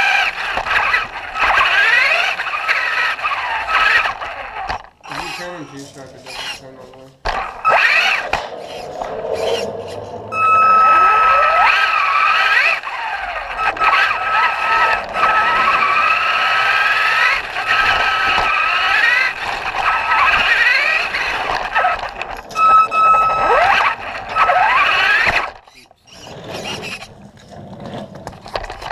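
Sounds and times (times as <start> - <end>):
rc truck motor whining: 0.0 - 28.9
steady high tone: 7.6 - 18.2.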